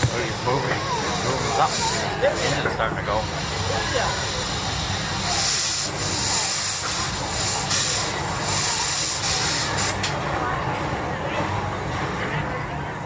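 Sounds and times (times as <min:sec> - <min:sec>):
loud steam hiss bursts: 0:00.0 - 0:10.2
steam engine low rumble: 0:00.0 - 0:13.0.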